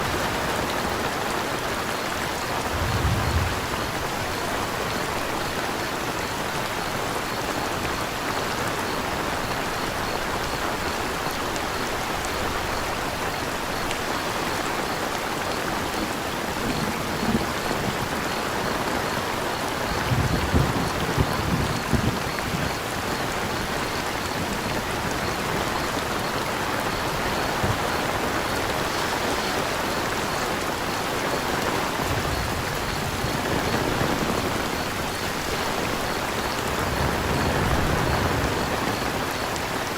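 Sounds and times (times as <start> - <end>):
crickets chirping: 0.0 - 39.9
rain pattering: 0.0 - 39.9
low thumps: 2.6 - 4.4.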